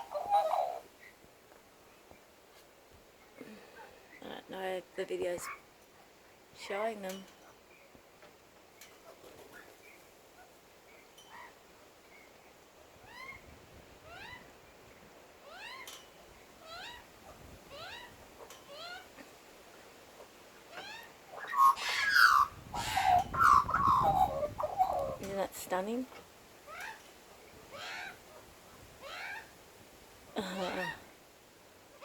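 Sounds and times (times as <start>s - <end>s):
birds calling: 0.0s - 1.2s, 7.0s - 29.6s, 30.3s - 31.2s
harsh bird calls: 20.8s - 25.2s.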